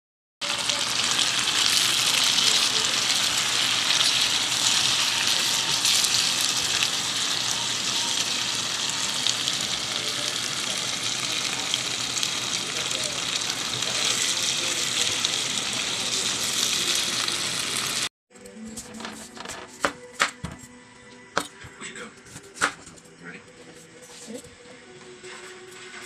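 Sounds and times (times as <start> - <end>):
food sizzling in a frying pan: 0.4 - 18.1.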